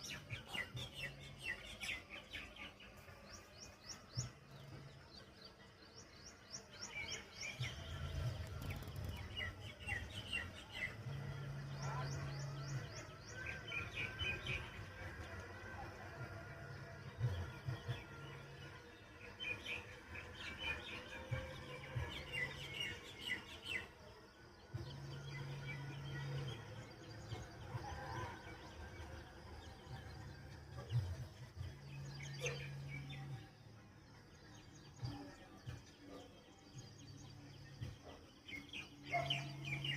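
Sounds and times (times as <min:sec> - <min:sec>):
small birds chirping: 0:00.0 - 0:14.8.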